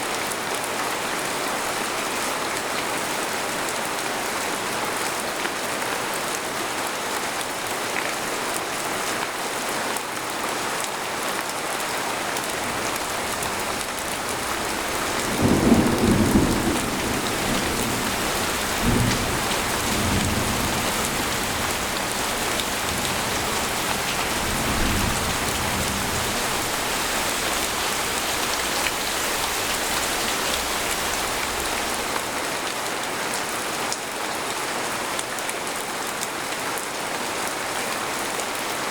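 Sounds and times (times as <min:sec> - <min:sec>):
rain pattering on a tent: 0:00.0 - 0:38.9
thunder rumbling: 0:12.6 - 0:32.3.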